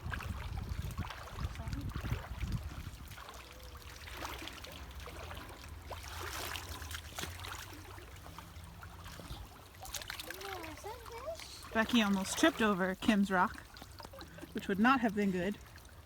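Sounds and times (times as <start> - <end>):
water splashing and trickling: 0.0 - 16.0.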